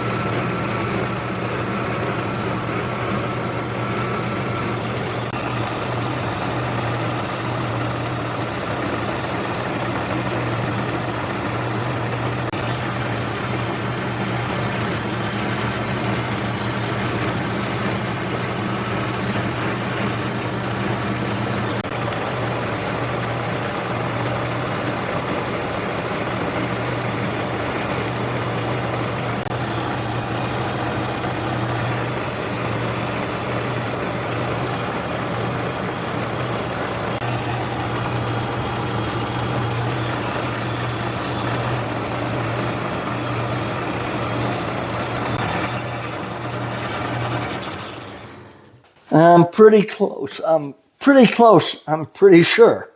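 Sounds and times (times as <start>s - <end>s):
metal lathe motor hum: 0.0s - 49.1s
lathe cutting metal: 0.0s - 49.3s.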